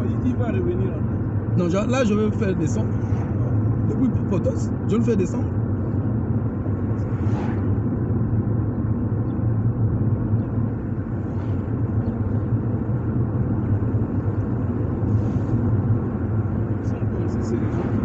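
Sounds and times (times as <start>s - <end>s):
car interior engine and tyre rumble: 0.0s - 18.0s
faint whoosh: 6.9s - 7.9s.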